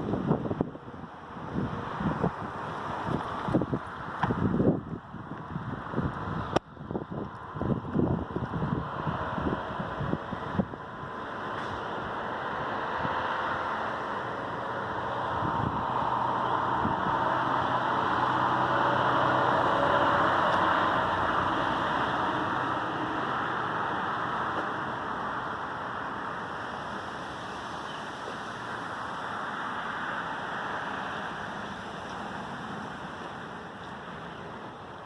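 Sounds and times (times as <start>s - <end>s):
wind rushing: 0.0s - 24.5s.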